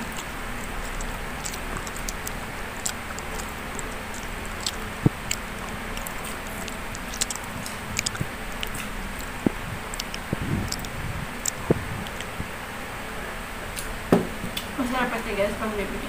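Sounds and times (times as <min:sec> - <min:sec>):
person chewing: 0:00.0 - 0:12.6.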